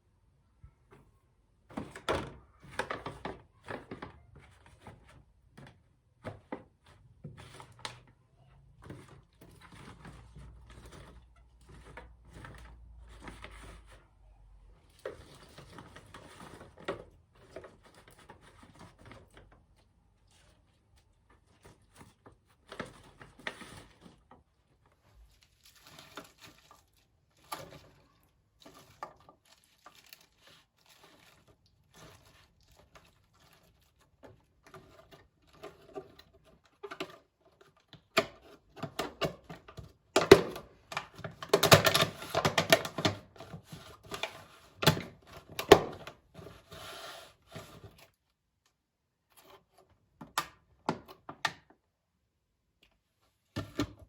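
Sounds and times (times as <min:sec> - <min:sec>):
rustling and tearing: 0:14.8 - 0:36.9.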